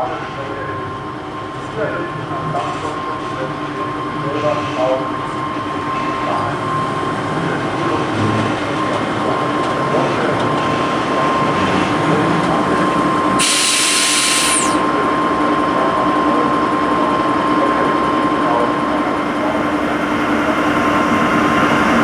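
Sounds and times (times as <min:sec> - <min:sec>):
locomotive whine: 0:00.0 - 0:22.0
loud hiss burst: 0:13.4 - 0:14.8.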